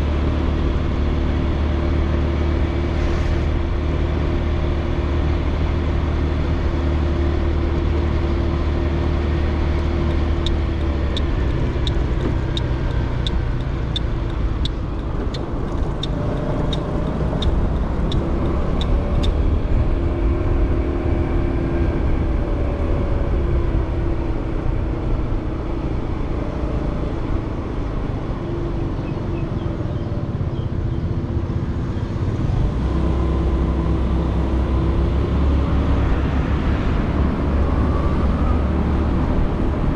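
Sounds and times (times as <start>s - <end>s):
low wind rumble: 0.0s - 39.9s
regular high ticking: 10.1s - 19.4s.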